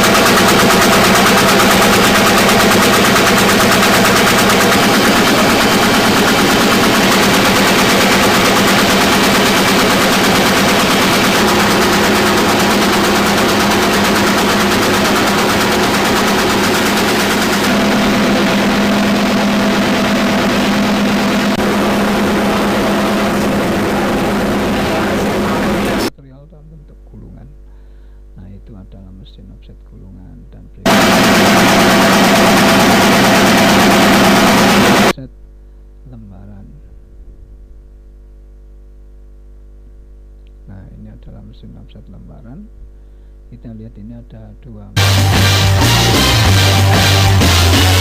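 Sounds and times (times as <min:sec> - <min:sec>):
printing press clatter: 0:00.0 - 0:26.1, 0:30.9 - 0:35.1
constant machine hum: 0:00.0 - 0:38.3, 0:39.3 - 0:48.0.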